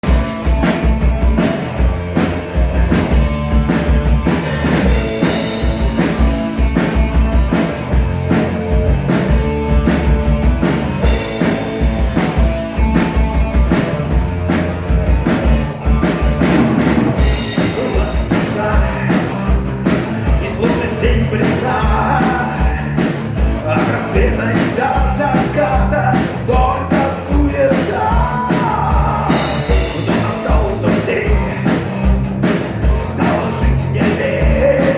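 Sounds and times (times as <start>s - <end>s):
drum kit beat: 0.0s - 34.9s
rock band playing live: 0.0s - 34.9s.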